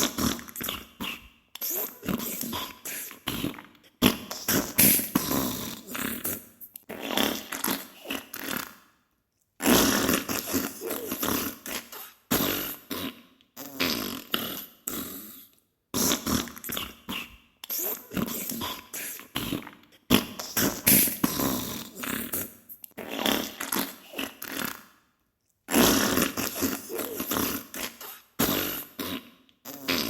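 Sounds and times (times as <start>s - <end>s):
wet sputtering farts: 0.0s - 8.8s, 9.6s - 15.3s, 16.0s - 24.8s, 25.7s - 30.0s.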